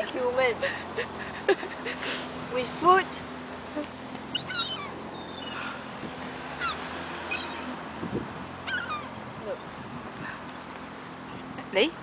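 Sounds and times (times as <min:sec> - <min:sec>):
seagulls calling: 0:03.9 - 0:11.5.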